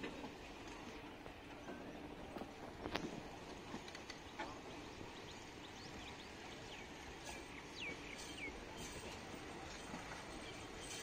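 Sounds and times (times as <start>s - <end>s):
passenger coaches rumbling: 0.0s - 11.0s
bird chirping: 4.2s - 8.9s.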